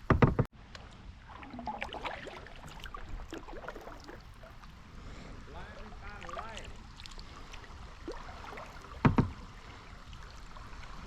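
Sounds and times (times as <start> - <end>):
paddle splashes and drips: 0.1 - 11.0.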